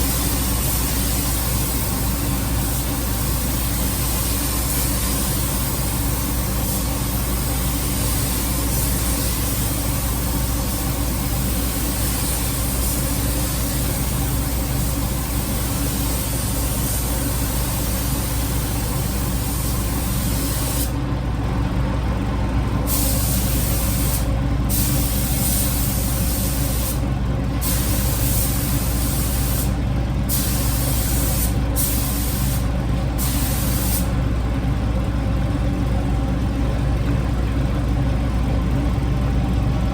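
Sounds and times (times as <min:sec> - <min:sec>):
paint spray gun hissing: 0:00.0 - 0:21.0, 0:22.9 - 0:27.0, 0:27.6 - 0:34.1
steady low hum: 0:00.0 - 0:39.9.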